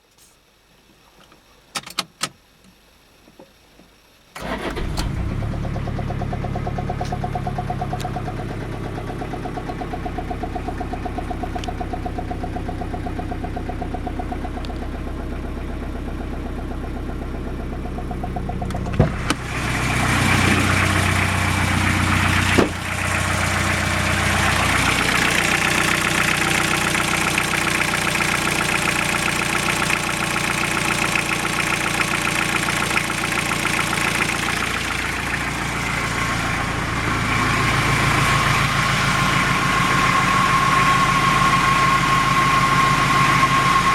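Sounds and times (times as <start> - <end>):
starter motor clicks: 4.4 - 5.8, 18.5 - 35.8
diesel engine cranking: 4.4 - 43.9
diesel engine knocking idle: 4.5 - 43.9.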